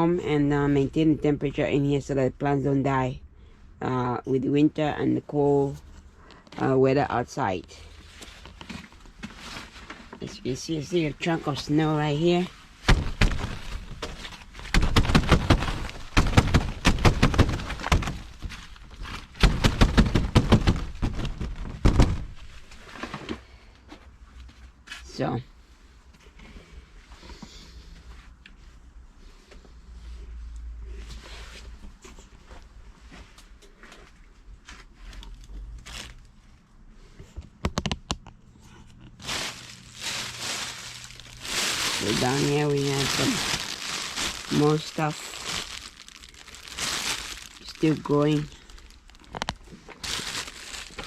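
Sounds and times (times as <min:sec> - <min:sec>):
rustling and crinkling: 0:07.8 - 0:51.0
snow and ice crunching: 0:39.2 - 0:49.4, 0:50.0 - 0:51.0.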